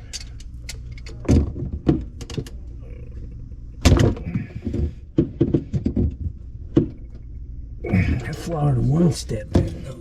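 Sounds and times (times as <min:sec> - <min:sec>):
drain pipe knocking and clunking: 0:03.8 - 0:07.0.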